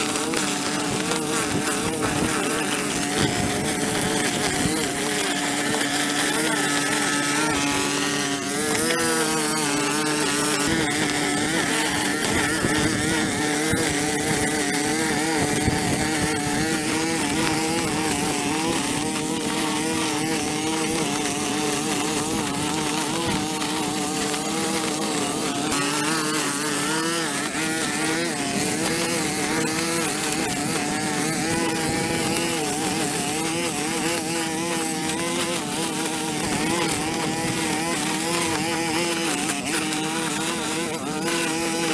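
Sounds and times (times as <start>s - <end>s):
small petrol engine running: 0.0s - 41.9s.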